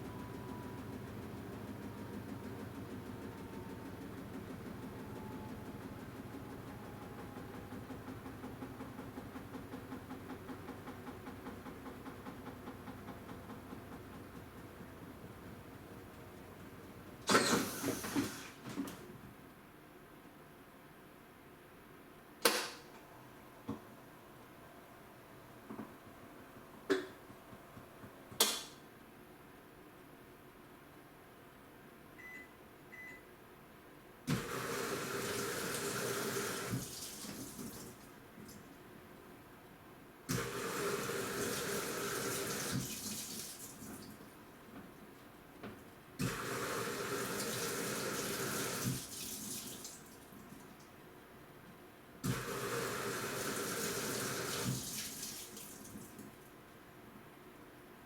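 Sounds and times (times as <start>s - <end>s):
washing machine motor humming: 0.0s - 18.6s, 34.3s - 38.5s, 40.3s - 44.8s, 46.2s - 50.4s, 52.2s - 56.4s
water pouring into washing machine: 34.4s - 38.0s, 40.4s - 44.3s, 46.3s - 50.8s, 52.3s - 56.3s.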